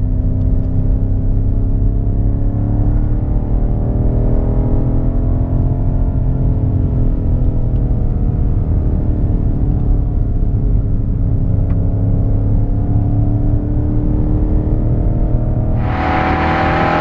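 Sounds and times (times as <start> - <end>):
low exhaust rumble: 15.7 - 17.0
car engine running: 15.8 - 17.0.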